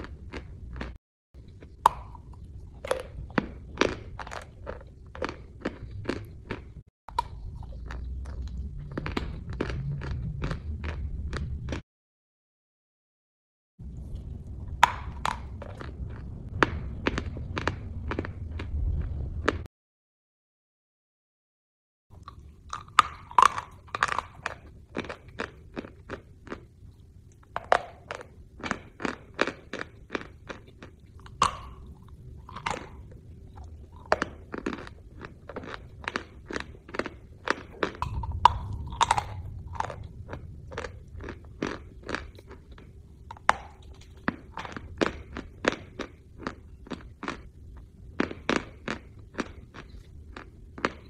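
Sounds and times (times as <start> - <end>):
crunchy food being chewed: 0.0 - 11.8, 13.8 - 19.7, 22.1 - 51.0.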